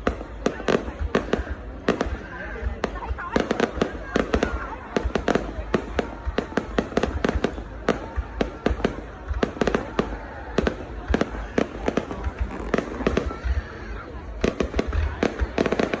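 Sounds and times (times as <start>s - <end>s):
fireworks bangs: 0.0s - 16.0s
fireworks crackling: 0.0s - 16.0s.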